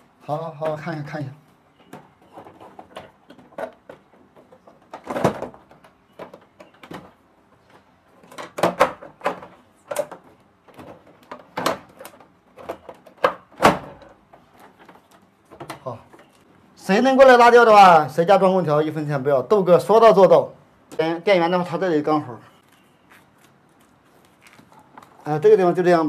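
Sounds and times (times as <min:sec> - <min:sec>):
hard parts knocking and rattling: 0:01.8 - 0:16.4.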